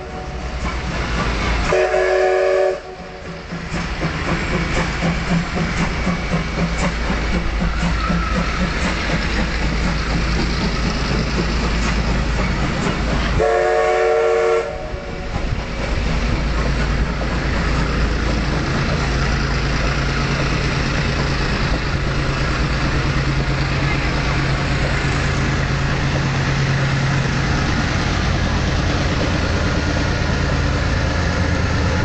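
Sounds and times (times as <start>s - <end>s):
steam train rumble and clatter: 0.0s - 32.0s
locomotive whistle blast: 1.7s - 3.1s, 13.4s - 15.1s.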